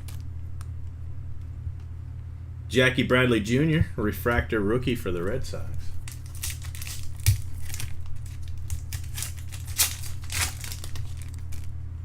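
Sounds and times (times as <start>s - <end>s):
cards and wrappers crinkling: 0.0s - 0.4s, 5.2s - 11.8s.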